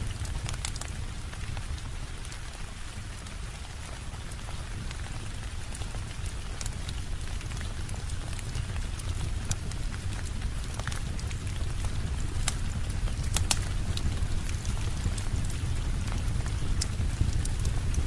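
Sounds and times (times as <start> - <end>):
steady rainfall: 0.0 - 18.0
wood fire crackling: 0.0 - 18.0.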